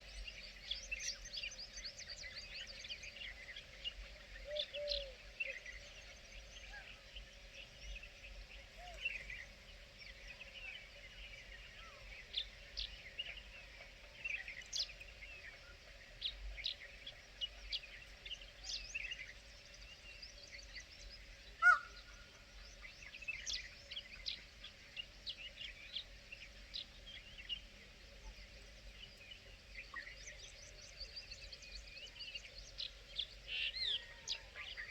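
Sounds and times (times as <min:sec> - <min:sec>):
birds chirping and calling: 0:21.6 - 0:21.9.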